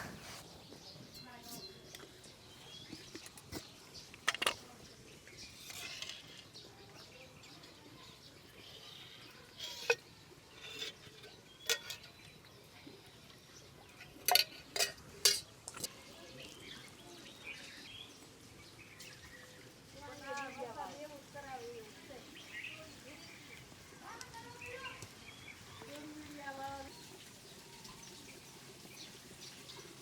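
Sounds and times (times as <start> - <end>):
kitchen utensils clinking: 5.4 - 6.6, 9.4 - 12.5, 13.9 - 16.0.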